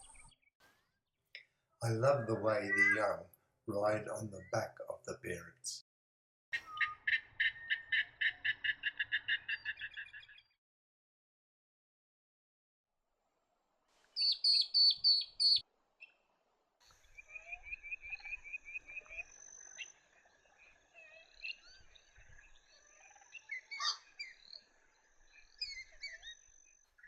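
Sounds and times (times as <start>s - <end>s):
bird trill: 1.8s - 4.7s, 6.6s - 10.6s, 14.2s - 16.2s, 17.0s - 27.0s
birds calling: 1.8s - 5.8s, 14.2s - 15.6s, 17.0s - 26.4s.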